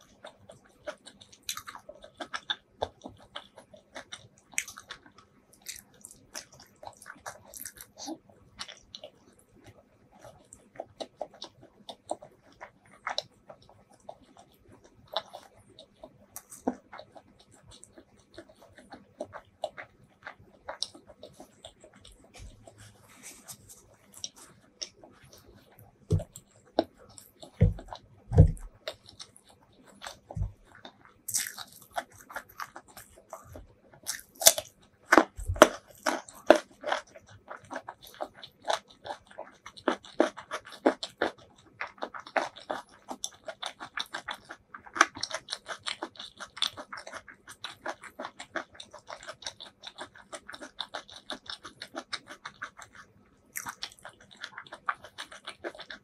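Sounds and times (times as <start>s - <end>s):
close-up chewing: 0.0s - 56.0s
dull thumps: 27.6s - 28.8s.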